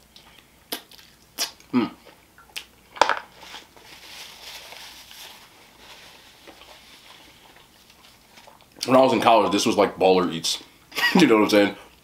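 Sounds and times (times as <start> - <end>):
sharp mouth smacks: 0.7 - 1.6
soft chewing: 3.4 - 8.9.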